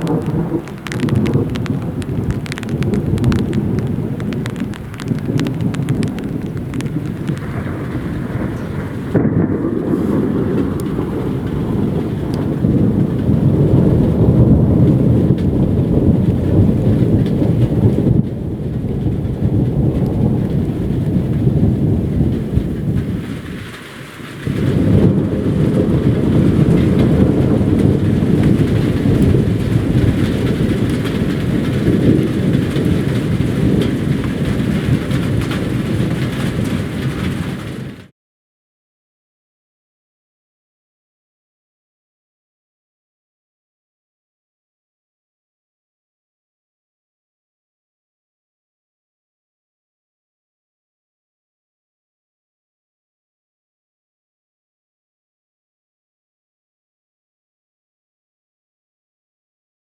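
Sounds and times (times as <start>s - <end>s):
heavy rain: 0.0s - 38.1s
thunder rumbling: 0.0s - 38.1s.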